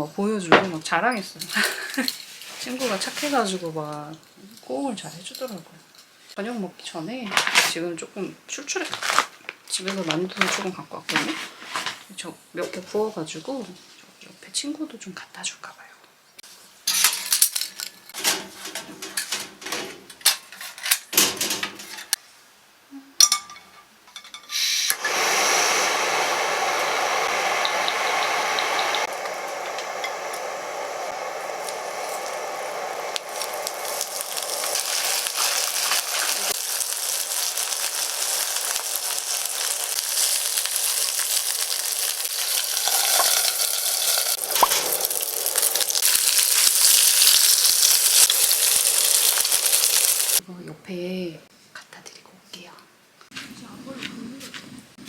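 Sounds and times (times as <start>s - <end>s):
dumplings sizzling in oil: 1.5s - 4.8s, 25.0s - 50.4s
cookware clinking and knocking: 23.2s - 24.5s.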